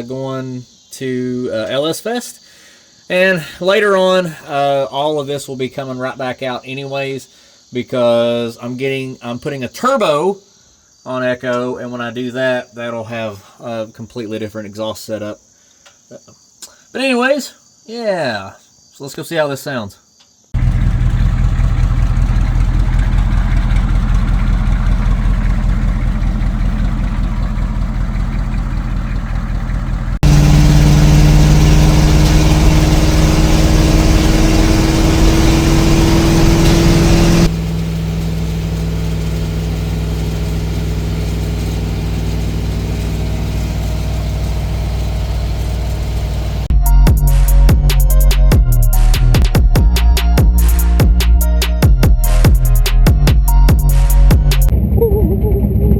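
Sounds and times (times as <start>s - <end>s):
engine running and revving: 20.6s - 46.7s.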